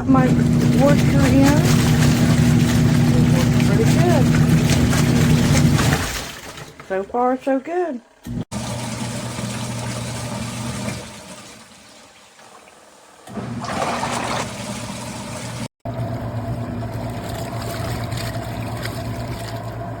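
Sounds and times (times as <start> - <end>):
water sloshing and trickling: 0.0 - 7.6, 8.5 - 20.0
washing machine motor hum: 0.0 - 20.0.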